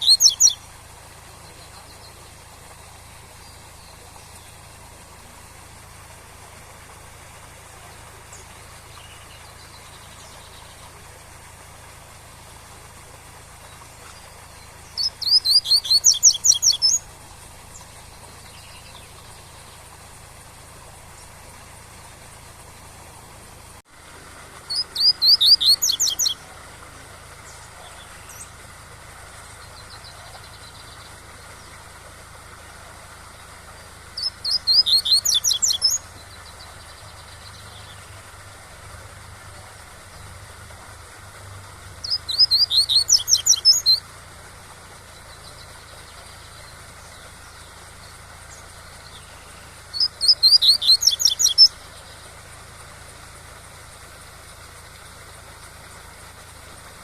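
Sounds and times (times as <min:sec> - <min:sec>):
bird singing rapid high notes: 0:00.0 - 0:02.5, 0:13.6 - 0:20.0, 0:24.6 - 0:28.6, 0:33.7 - 0:38.2, 0:42.0 - 0:44.1, 0:45.3 - 0:52.2
waterfall noise: 0:00.0 - 0:57.0.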